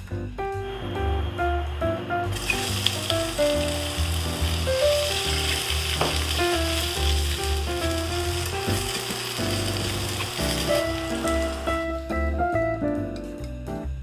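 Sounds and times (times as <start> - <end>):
background music: 0.0 - 14.0
food sizzling in hot oil: 1.2 - 12.0.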